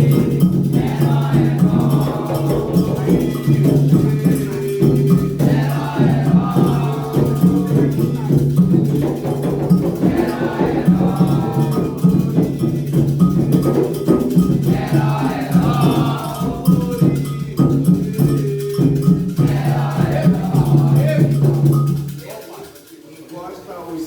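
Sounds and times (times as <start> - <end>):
group singing: 0.0 - 22.1
hand drums: 0.0 - 23.3
struck metal bell: 6.1 - 22.2.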